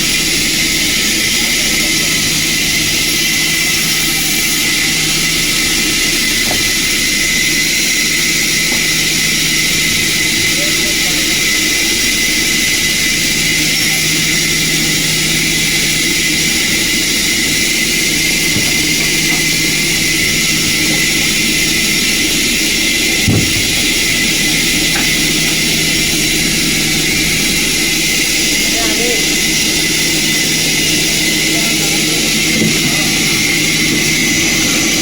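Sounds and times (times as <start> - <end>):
sawmill machinery running: 0.0 - 35.0
short knock: 23.2 - 23.8.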